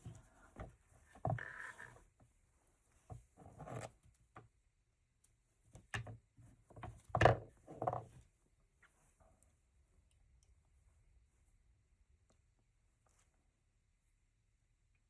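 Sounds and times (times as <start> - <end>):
rustling through craft supplies: 0.0 - 4.6.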